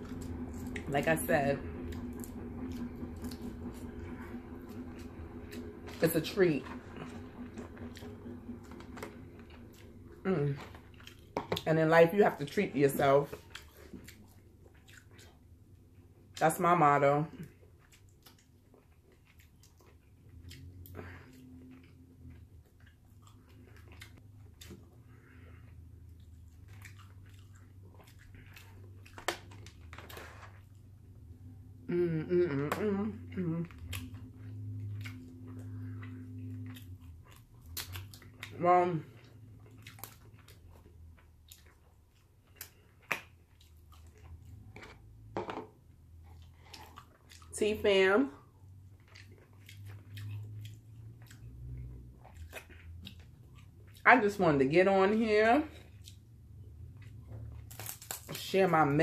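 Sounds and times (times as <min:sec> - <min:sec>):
low steady hum: 0:00.0 - 0:59.0
person chewing food: 0:07.0 - 0:11.7, 0:13.3 - 0:16.4, 0:17.4 - 0:31.0, 0:33.3 - 0:47.5, 0:48.4 - 0:54.0, 0:55.7 - 0:58.4.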